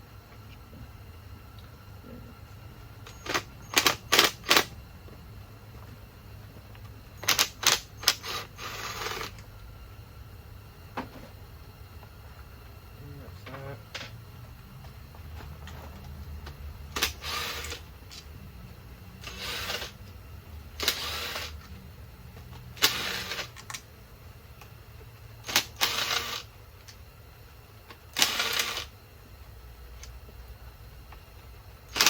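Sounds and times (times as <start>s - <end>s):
ratchet wrench clicking: 3.1s - 4.7s, 7.2s - 9.4s, 16.9s - 18.3s, 19.2s - 20.0s, 20.8s - 21.6s, 22.8s - 23.8s, 25.4s - 26.5s, 28.1s - 28.9s.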